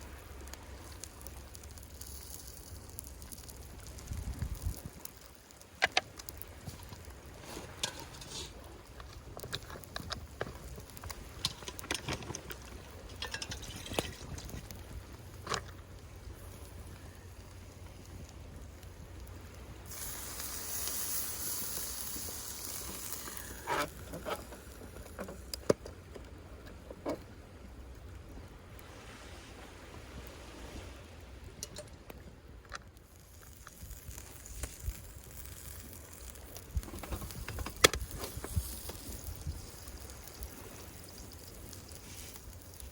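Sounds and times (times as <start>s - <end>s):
campfire crackling: 0.0s - 42.9s
hiss: 19.8s - 25.0s.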